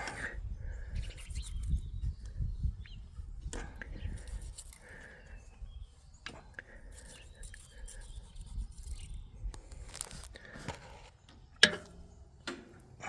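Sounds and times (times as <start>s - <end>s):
hand tools scraping and clicking metal: 1.0s - 1.9s, 3.5s - 5.4s, 6.2s - 12.9s.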